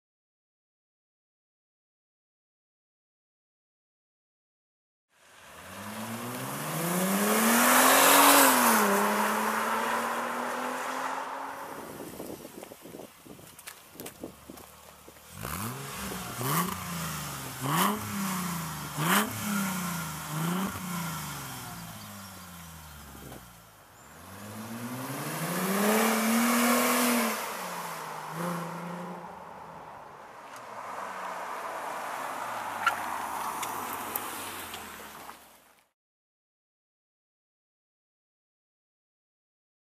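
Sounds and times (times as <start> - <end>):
car accelerating past: 5.4 - 12.1, 24.2 - 29.9.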